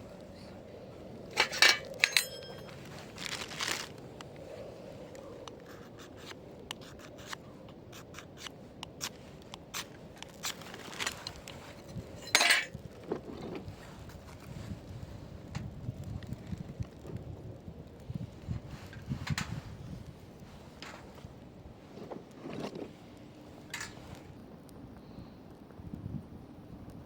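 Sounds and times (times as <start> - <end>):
light ticks and crackles: 0.0 - 27.0
ferro rod striker scraping: 1.3 - 2.8.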